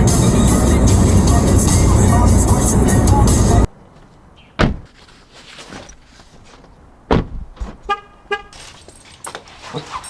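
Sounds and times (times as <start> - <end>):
car doors slamming: 4.6 - 4.9, 7.1 - 7.9.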